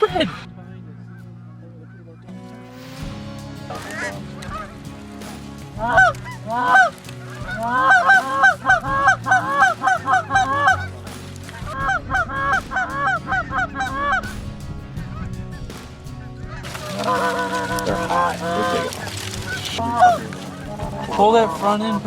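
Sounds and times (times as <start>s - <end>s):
goose honking: 3.6s - 4.8s, 5.8s - 14.3s, 16.5s - 22.0s.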